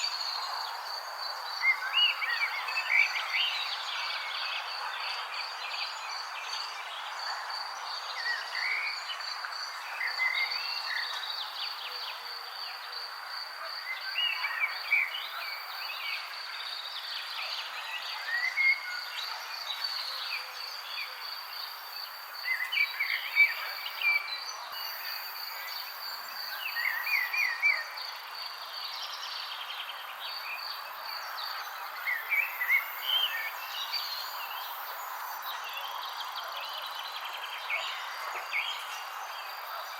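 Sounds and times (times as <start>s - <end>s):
background hiss: 19.7s - 39.9s.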